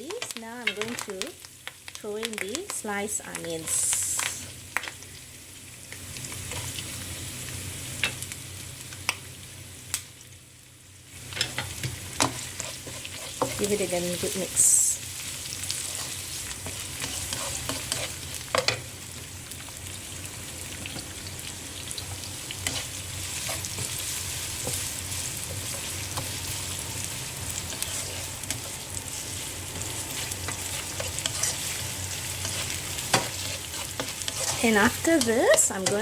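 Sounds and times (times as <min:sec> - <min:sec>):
food sizzling in hot oil: 0:00.0 - 0:36.0
spatula scraping a pan: 0:11.4 - 0:13.7, 0:15.7 - 0:18.8, 0:22.6 - 0:26.4, 0:27.5 - 0:28.7, 0:30.1 - 0:36.0.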